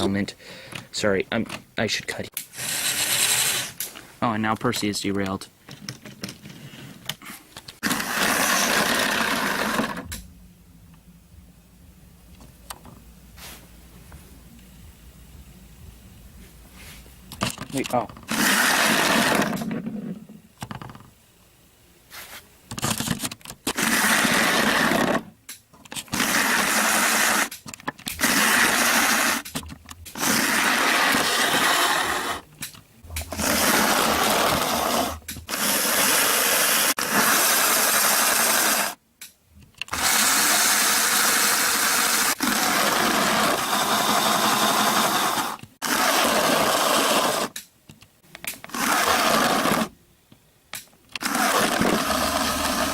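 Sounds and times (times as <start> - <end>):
model train motor running: 2.5 - 3.9, 7.8 - 10.2, 18.3 - 19.6, 23.7 - 25.3, 26.1 - 29.5, 30.1 - 32.4, 33.2 - 39.0, 39.9 - 47.5, 48.6 - 49.9, 51.2 - 52.9.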